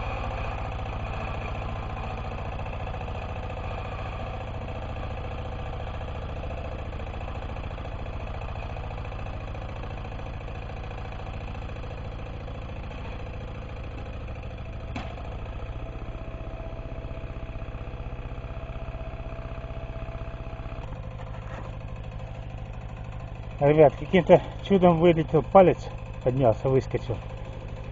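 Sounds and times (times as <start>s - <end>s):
diesel tractor engine running: 0.0s - 27.9s.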